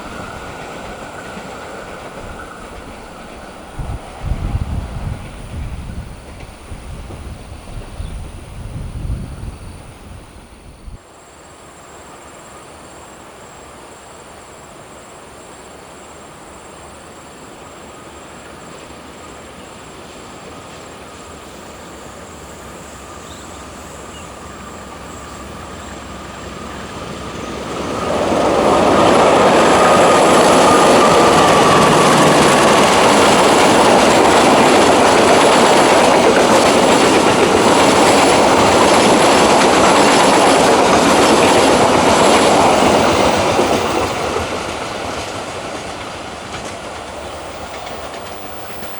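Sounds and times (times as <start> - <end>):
train wheels rumbling on rail: 0.0 - 11.1, 15.6 - 48.9
high wheel squeal: 21.4 - 39.4, 47.3 - 48.9.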